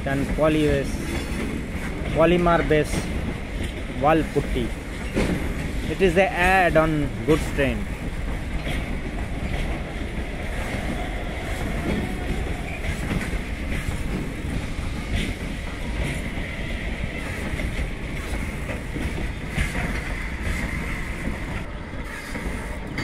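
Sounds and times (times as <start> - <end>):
freight wagons rumbling: 0.0 - 23.0
wheels clacking over rail joints: 0.0 - 23.0.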